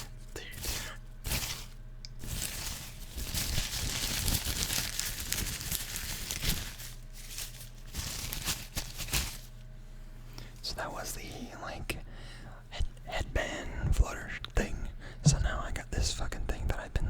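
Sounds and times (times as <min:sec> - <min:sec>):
headband rustling against microphone: 0:00.0 - 0:09.6.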